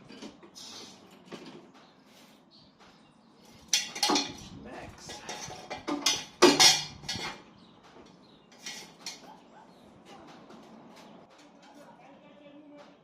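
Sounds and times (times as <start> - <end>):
metal hand tools clanking: 3.6 - 7.5, 8.5 - 9.3.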